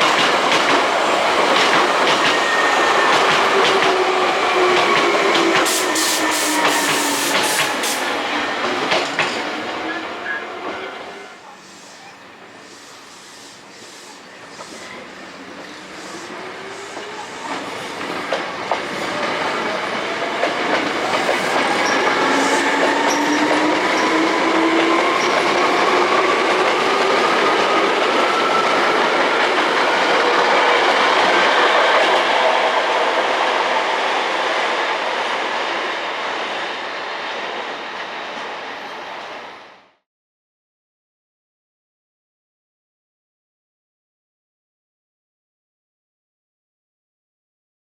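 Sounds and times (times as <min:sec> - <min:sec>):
wheels rumbling and clacking on rails: 0:00.0 - 0:10.9, 0:13.6 - 0:38.9.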